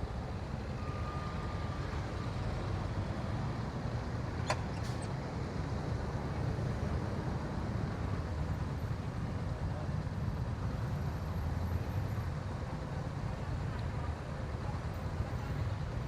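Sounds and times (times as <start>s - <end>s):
road and wind noise: 0.0s - 16.0s.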